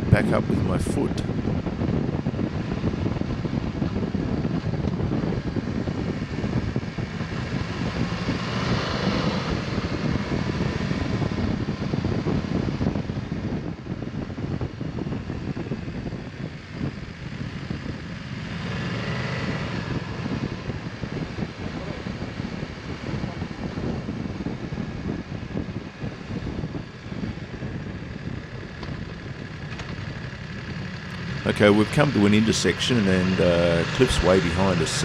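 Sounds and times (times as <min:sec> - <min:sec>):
wind on microphone: 0:00.0 - 0:35.0
motorcycle engine running: 0:01.3 - 0:35.0.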